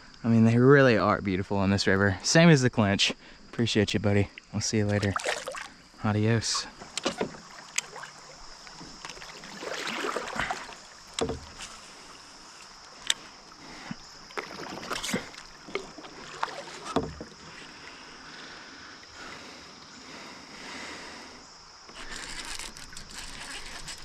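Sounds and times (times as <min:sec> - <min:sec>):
water noise: 0:03.8 - 0:24.0
sharp knocks on kayak: 0:11.2 - 0:11.7, 0:16.8 - 0:17.4.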